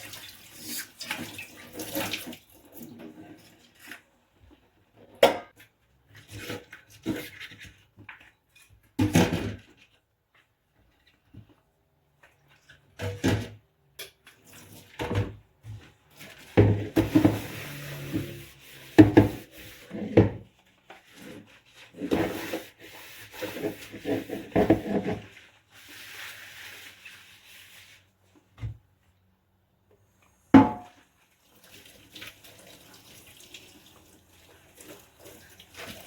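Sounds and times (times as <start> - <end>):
dishes being scrubbed: 16.0 - 28.2.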